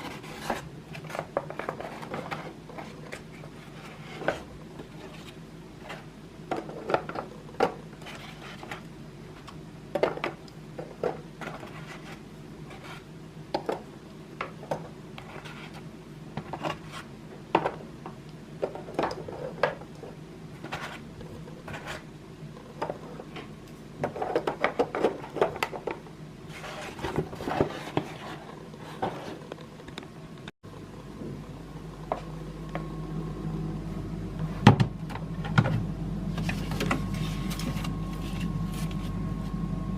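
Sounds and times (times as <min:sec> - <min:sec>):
rubbing and scraping: 0:00.0 - 0:09.5, 0:10.8 - 0:13.1, 0:15.2 - 0:17.1, 0:18.6 - 0:29.6.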